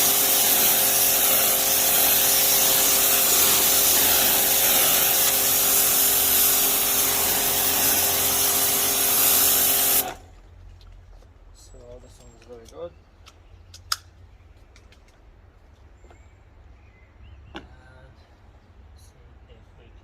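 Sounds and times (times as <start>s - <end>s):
motor and pump hum: 0.0s - 10.3s
pressure washer water jet hiss: 0.0s - 10.3s.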